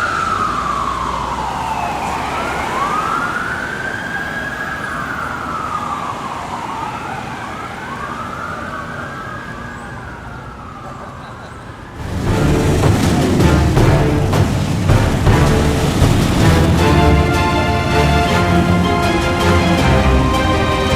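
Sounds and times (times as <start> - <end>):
fire truck sirens wailing: 0.0 - 20.9
music: 12.0 - 20.9.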